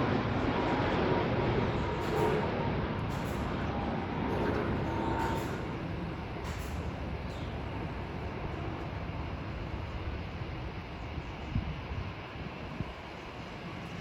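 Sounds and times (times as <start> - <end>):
jet engine rumble: 0.0 - 14.0.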